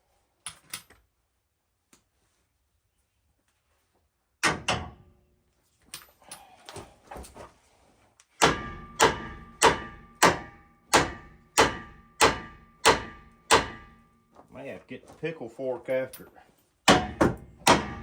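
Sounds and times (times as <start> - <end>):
hammer blows ringing on steel: 8.4 - 14.2, 16.9 - 18.0.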